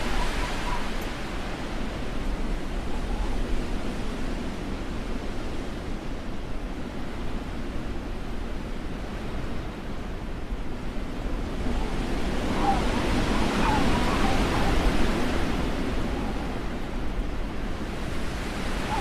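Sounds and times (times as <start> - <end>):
blizzard wind rushing: 0.0 - 5.5, 10.5 - 19.0.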